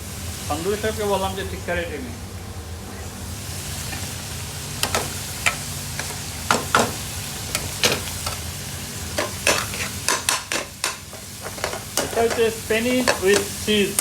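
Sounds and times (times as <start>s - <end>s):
curry sizzling in a pan: 0.0s - 14.0s
spoon clanking against pan: 4.8s - 8.5s, 9.1s - 14.0s
metal spoon scraping a pan: 9.2s - 13.5s.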